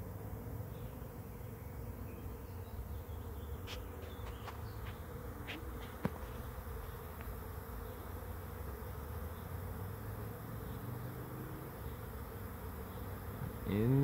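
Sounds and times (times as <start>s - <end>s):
bee swarm buzzing: 0.0s - 14.0s
faint ticks: 7.1s - 7.4s.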